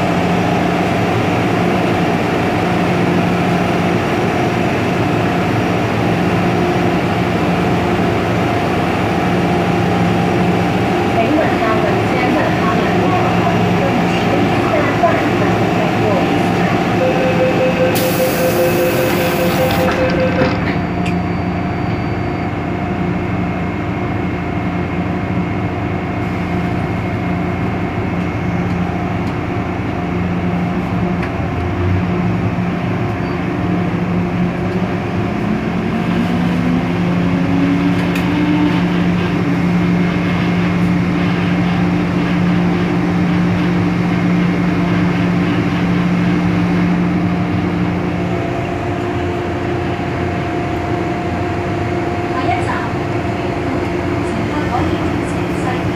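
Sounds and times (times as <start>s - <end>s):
train running hum and rail noise: 0.0s - 55.9s
quick beeps: 17.0s - 22.0s.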